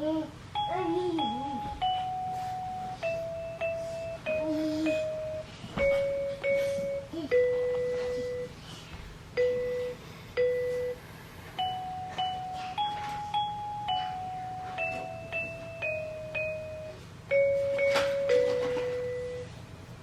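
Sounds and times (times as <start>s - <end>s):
electronic toy chime tune: 0.6s - 8.5s, 11.6s - 19.5s.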